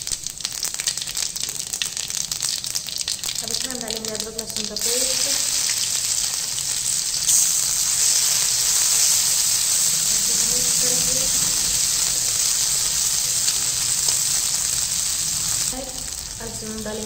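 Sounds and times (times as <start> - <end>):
paste sizzling in hot oil: 0.0 - 17.0.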